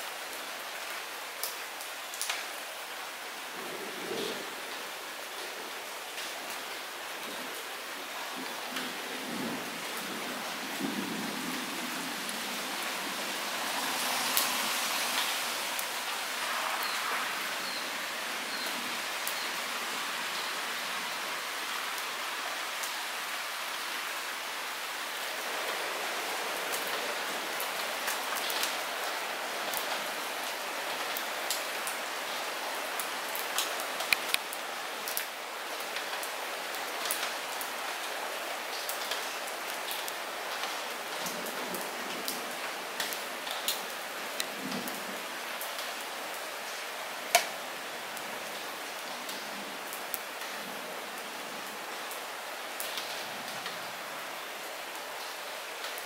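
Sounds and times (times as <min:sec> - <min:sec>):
light rain falling: 0:00.0 - 0:56.0
raindrops ticking: 0:33.6 - 0:35.3, 0:47.3 - 0:47.6.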